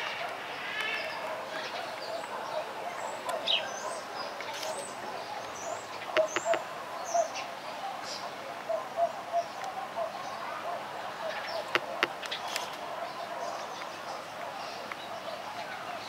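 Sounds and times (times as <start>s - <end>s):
birds chirping: 0.0s - 16.0s
sharp clicks: 6.2s - 6.6s.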